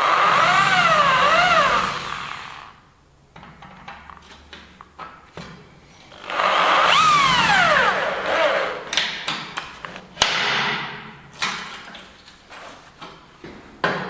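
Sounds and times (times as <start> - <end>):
power tool grinding: 0.0 - 2.8, 6.1 - 9.0.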